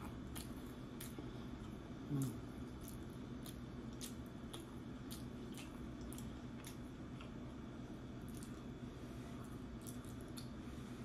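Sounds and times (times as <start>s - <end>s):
low room hum: 0.0s - 11.0s
wet chewing mouth clicks: 2.1s - 7.4s.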